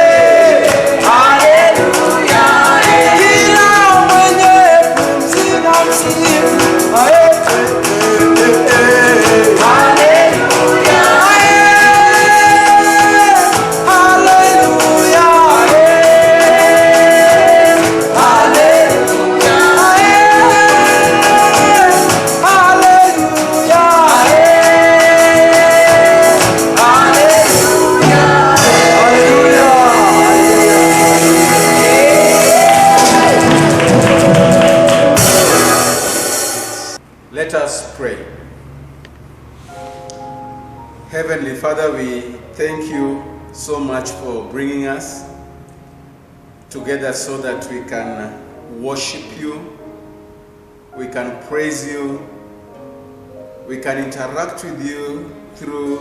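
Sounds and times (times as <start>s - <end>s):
gospel song sung live: 0.0s - 38.2s, 51.0s - 52.3s, 53.7s - 56.0s.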